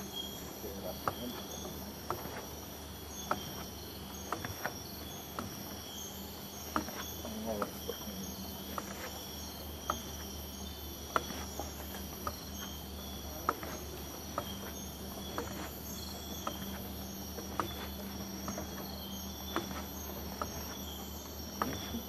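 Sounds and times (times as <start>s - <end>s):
insect chorus buzzing and trilling: 0.0s - 22.0s.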